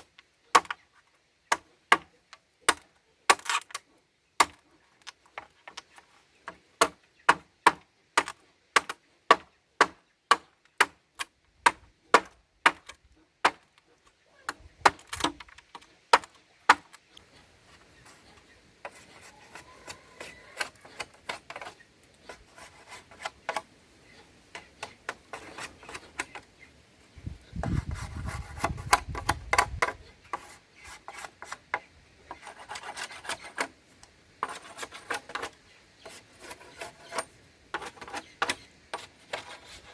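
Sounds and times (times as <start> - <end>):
scraping and rasping strokes: 17.2 - 26.5, 27.6 - 39.9.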